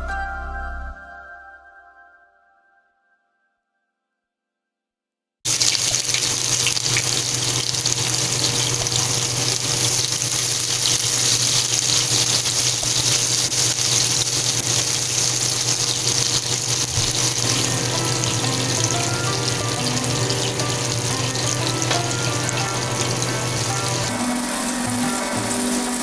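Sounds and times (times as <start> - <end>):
onions sizzling in hot oil: 5.5 - 26.0.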